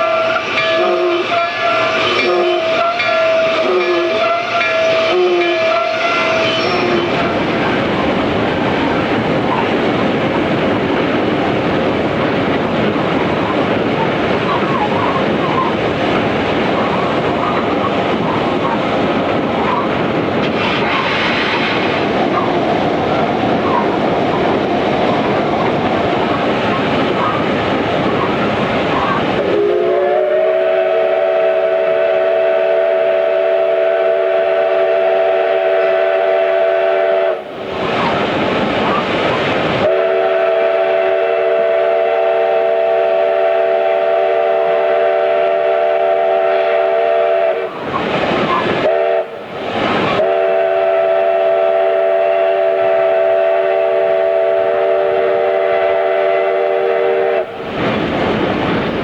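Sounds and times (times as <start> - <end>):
steam whistle blasts: 0.0 - 7.4, 29.4 - 37.5, 39.8 - 49.4, 50.0 - 57.6
train rushing and clattering: 0.0 - 59.0.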